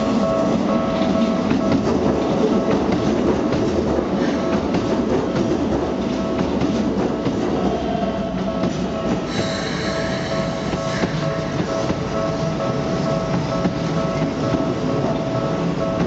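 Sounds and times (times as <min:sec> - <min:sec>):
steady train rumble: 0:00.0 - 0:16.0
train wheels clattering over joints: 0:00.1 - 0:07.8
high squeal: 0:09.3 - 0:11.4.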